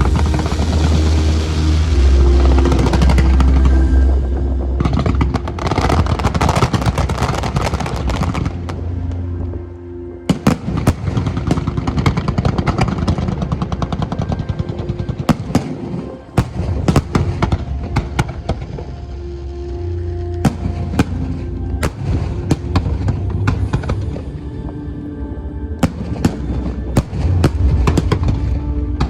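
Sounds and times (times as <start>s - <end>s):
fireworks crackling: 0.0s - 4.2s, 4.8s - 8.8s
background music: 0.0s - 29.0s.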